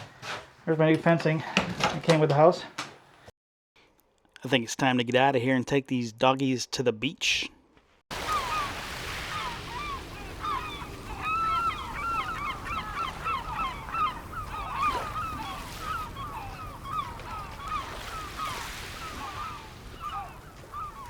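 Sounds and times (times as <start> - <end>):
flock of birds calling: 8.2 - 21.0.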